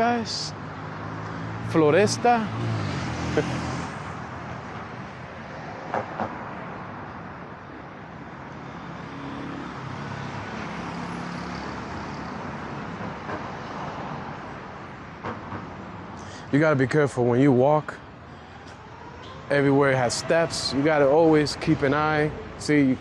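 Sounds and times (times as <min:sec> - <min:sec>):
vehicle engine humming past: 0:00.0 - 0:07.0
city street traffic: 0:00.0 - 0:23.0.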